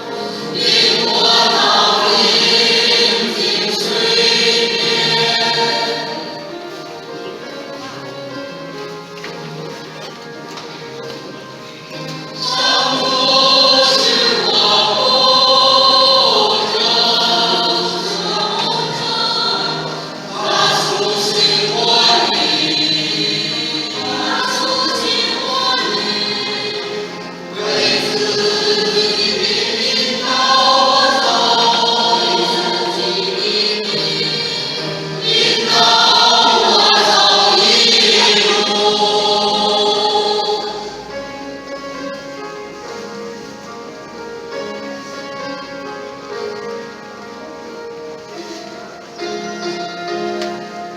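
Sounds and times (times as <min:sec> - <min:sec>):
group singing a hymn: 0:00.0 - 0:08.3, 0:11.7 - 0:42.3.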